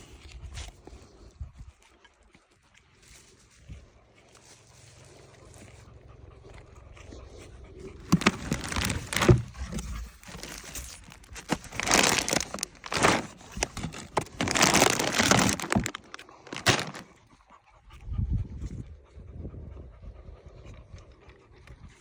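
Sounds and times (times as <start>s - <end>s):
packaging crinkling and tearing: 8.0s - 17.2s.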